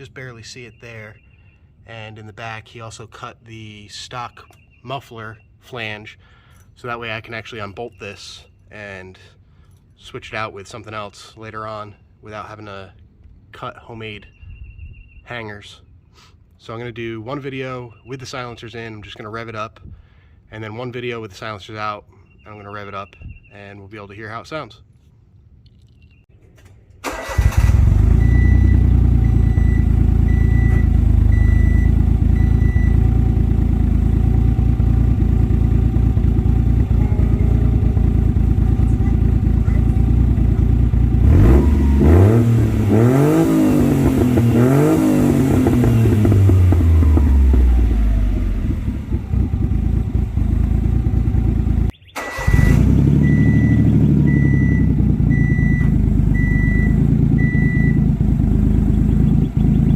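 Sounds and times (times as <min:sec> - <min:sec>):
small car engine idling and revving: 0:27.1 - 0:59.9
repeating beep: 0:28.1 - 0:33.0, 0:43.0 - 0:46.2, 0:53.2 - 0:58.0.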